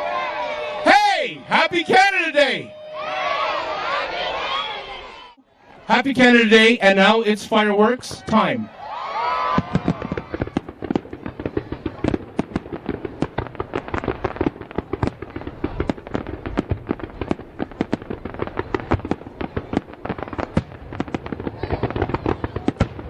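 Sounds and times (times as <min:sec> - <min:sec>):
fireworks bangs and pops: 0:09.4 - 0:23.0.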